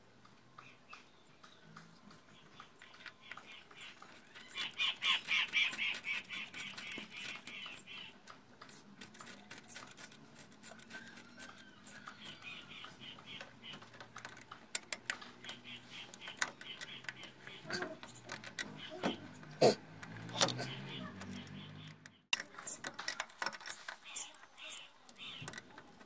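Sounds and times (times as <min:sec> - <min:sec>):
metal parts clicking and tapping: 0:01.4 - 0:26.0
bird chattering call: 0:20.4 - 0:22.2.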